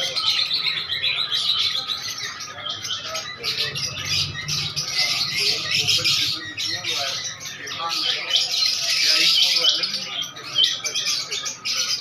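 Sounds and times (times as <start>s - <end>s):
small birds chirping: 0.0s - 12.0s
faint low hum: 3.1s - 7.6s.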